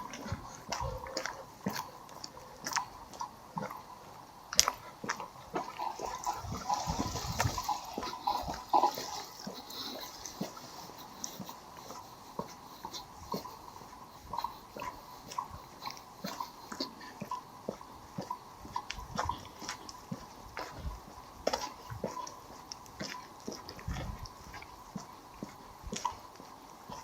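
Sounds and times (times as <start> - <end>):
footsteps crunching on path: 0.0 - 27.0
sea water splashing on shore: 5.5 - 10.6.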